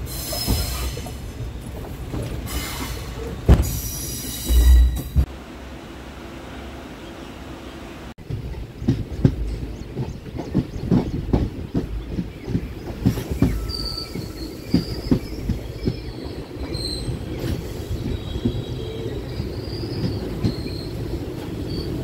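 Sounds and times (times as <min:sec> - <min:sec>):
train low rumble: 0:00.0 - 0:22.0
high wheel squeal: 0:02.5 - 0:05.2, 0:13.5 - 0:15.4
wheels clacking over rail joints: 0:08.2 - 0:22.0.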